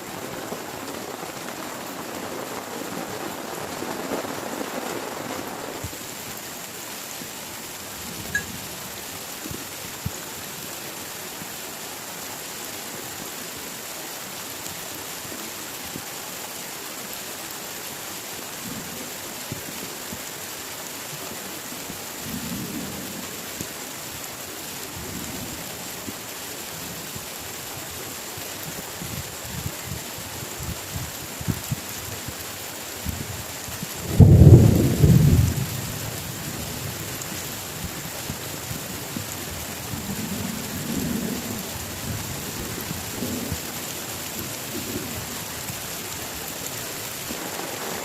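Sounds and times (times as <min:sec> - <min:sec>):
heavy rain falling: 0:00.0 - 0:48.0
rumble of thunder: 0:33.9 - 0:37.0.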